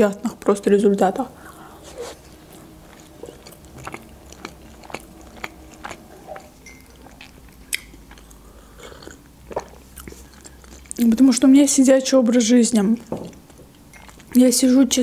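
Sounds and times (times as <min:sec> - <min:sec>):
person chewing food: 0:01.4 - 0:11.2, 0:12.9 - 0:14.4
wet mouth clicks: 0:02.0 - 0:11.0.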